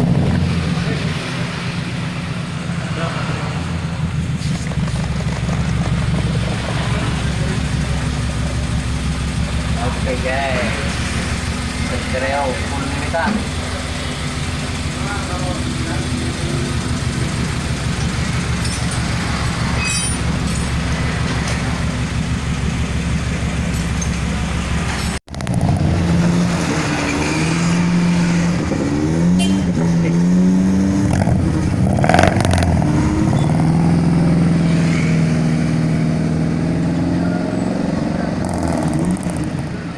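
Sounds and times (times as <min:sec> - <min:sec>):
car engine idling: 0:00.0 - 0:39.9
engine revving: 0:00.0 - 0:39.9.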